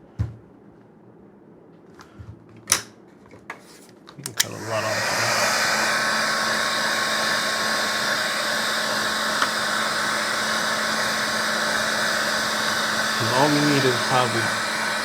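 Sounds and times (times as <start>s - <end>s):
heat gun blowing air: 4.4s - 15.0s.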